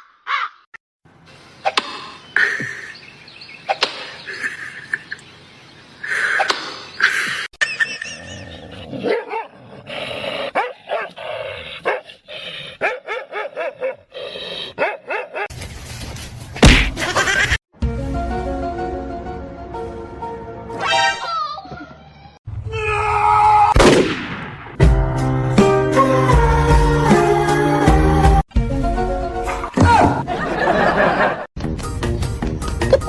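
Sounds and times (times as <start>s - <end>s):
dog barking and yipping: 9.0s - 9.5s, 10.5s - 11.2s, 11.8s - 12.1s, 12.8s - 14.1s, 14.8s - 15.5s.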